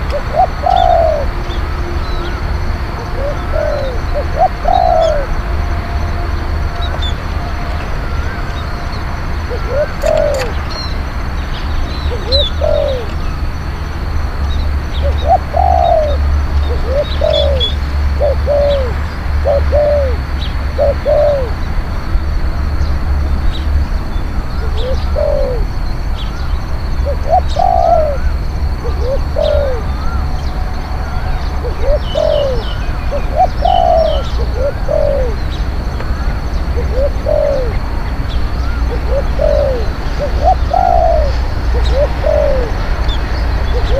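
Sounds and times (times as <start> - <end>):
dove cooing: 0.0 - 1.4, 3.0 - 5.5, 9.5 - 10.7, 12.0 - 13.2, 15.0 - 21.6, 24.6 - 25.8, 27.0 - 43.9
small birds chirping: 9.5 - 21.6, 22.8 - 43.9.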